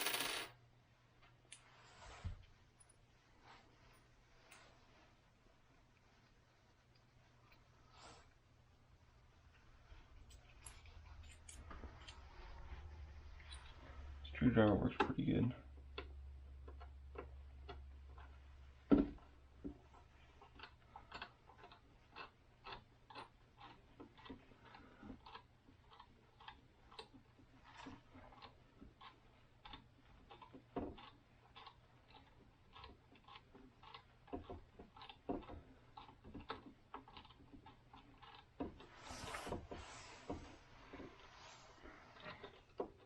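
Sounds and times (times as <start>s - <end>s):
small clicks and taps: 15.8s - 39.2s
scraping rustle: 38.8s - 42.8s.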